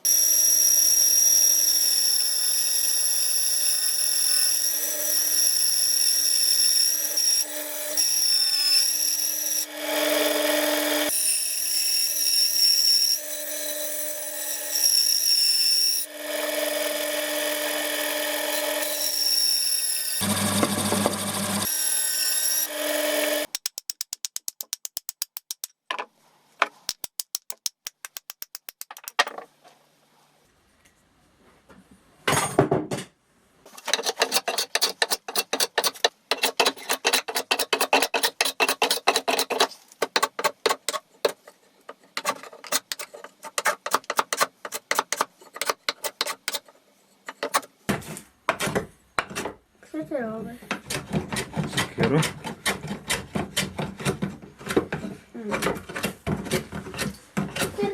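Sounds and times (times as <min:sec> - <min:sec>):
power tool running: 0:20.2 - 0:21.9, 0:22.6 - 0:23.5.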